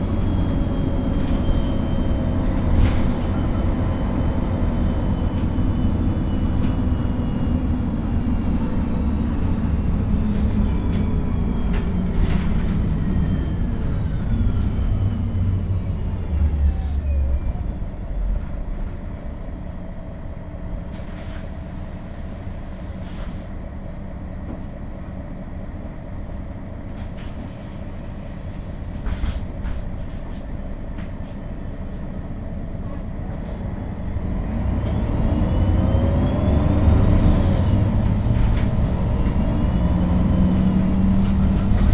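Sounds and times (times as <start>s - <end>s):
bus engine idling: 0.0s - 41.9s
diesel bus engine whine: 0.0s - 41.9s.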